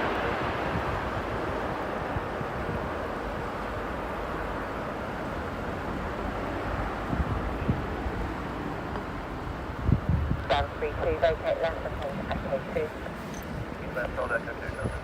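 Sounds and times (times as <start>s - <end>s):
wind on microphone: 0.0s - 3.6s, 6.7s - 8.4s, 9.5s - 15.0s
jet airliner engine roar: 0.0s - 15.0s.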